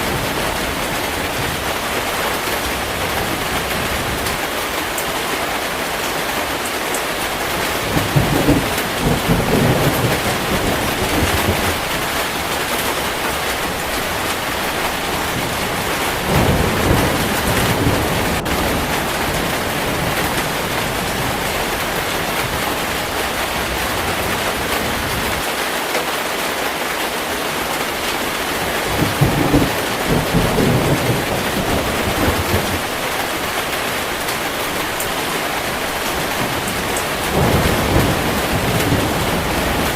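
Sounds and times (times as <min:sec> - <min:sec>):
heavy rain falling: 0:00.0 - 0:39.9
low rolls of thunder: 0:07.4 - 0:25.4, 0:28.6 - 0:39.9.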